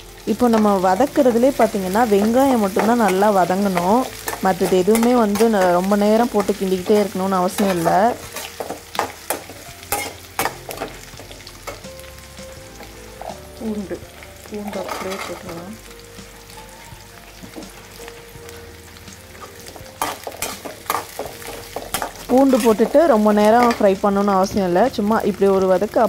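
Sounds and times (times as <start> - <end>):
onions frying in oil: 0.0 - 26.0
metal spatula scraping a pan: 1.2 - 11.8, 14.6 - 15.7, 19.4 - 24.0.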